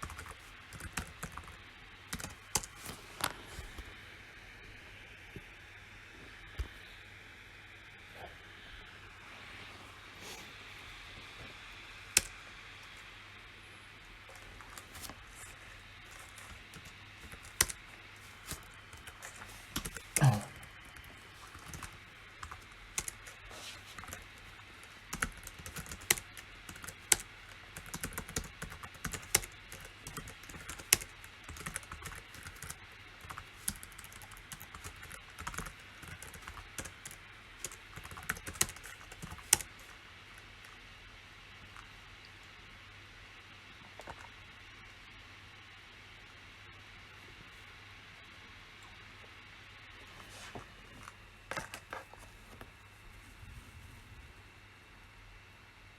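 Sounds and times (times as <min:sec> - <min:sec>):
keyboard typing clicks: 0:25.1 - 0:39.8.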